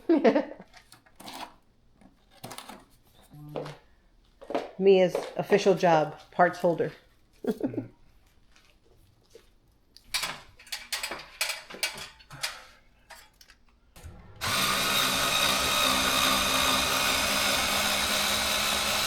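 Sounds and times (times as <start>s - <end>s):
parts clicking and rattling: 10.1s - 14.6s
power drill-driver running: 14.0s - 19.0s.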